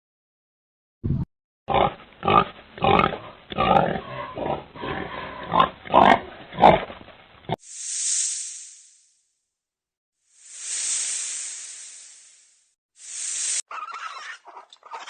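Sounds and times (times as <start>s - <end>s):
animal grunting: 1.7s - 7.0s
loud steady hiss: 7.7s - 9.1s, 10.4s - 13.6s.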